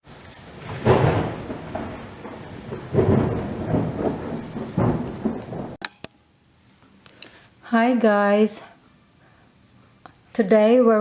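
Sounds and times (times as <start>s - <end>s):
rain hissing: 0.0s - 5.8s
thunder rumbling: 0.0s - 5.8s.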